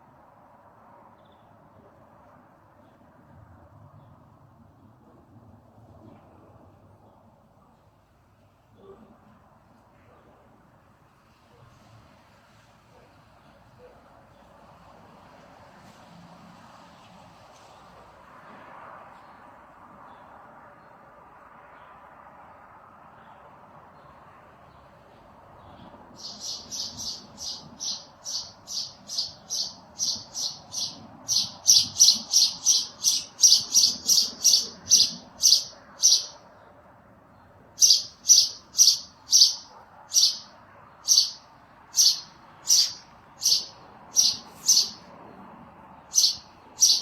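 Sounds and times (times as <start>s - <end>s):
bird chirping: 26.2s - 36.4s, 37.8s - 45.1s, 46.1s - 47.0s.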